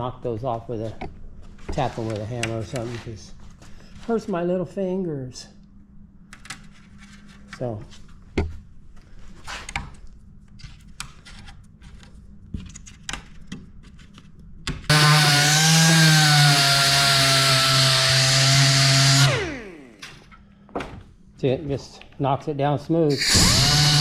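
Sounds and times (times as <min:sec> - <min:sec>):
power tool running against wood: 0:14.9 - 0:20.0, 0:23.1 - 0:24.0.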